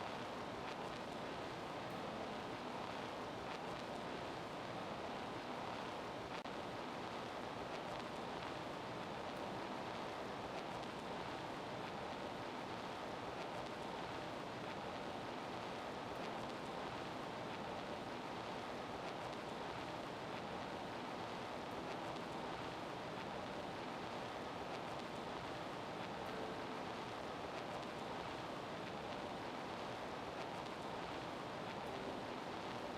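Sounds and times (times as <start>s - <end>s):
faint ticks: 7.6s - 32.9s.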